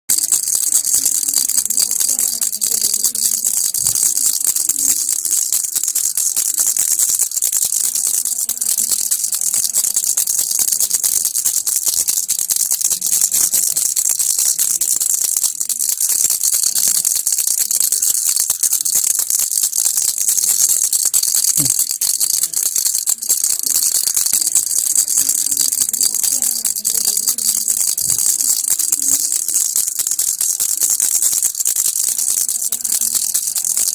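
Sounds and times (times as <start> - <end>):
baby rattle shaken: 0.1 - 33.9.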